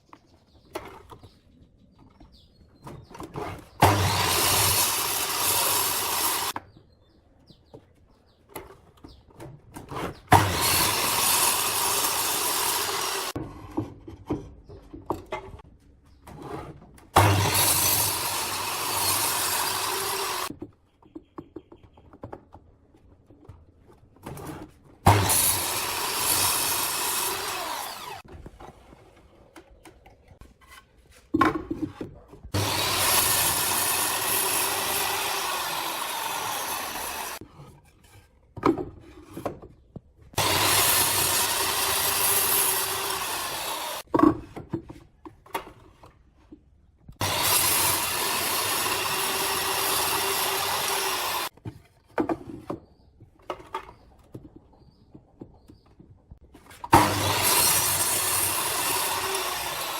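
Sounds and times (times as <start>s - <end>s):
power tool cutting wood: 3.8s - 6.6s, 10.3s - 13.4s, 17.2s - 20.5s, 25.1s - 28.3s, 32.6s - 37.4s, 40.4s - 44.0s, 47.2s - 51.5s, 56.9s - 59.9s.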